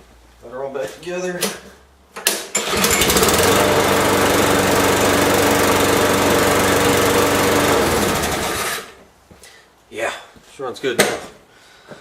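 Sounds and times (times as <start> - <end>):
lawn mower engine running: 2.6 - 8.9.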